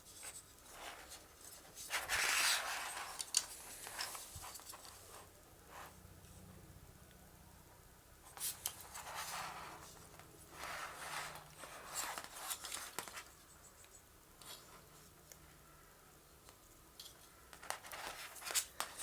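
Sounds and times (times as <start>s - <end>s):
rustling and clicking handling: 0.0s - 5.3s, 8.3s - 15.6s, 16.4s - 19.0s
faint low hum: 0.0s - 19.0s.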